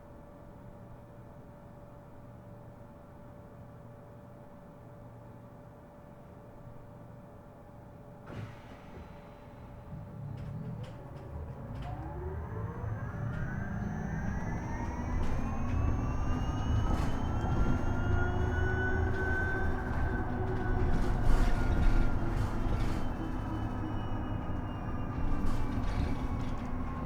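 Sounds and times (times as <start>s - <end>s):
electric bus motor whine: 8.3s - 27.0s
low road rumble: 9.8s - 27.0s.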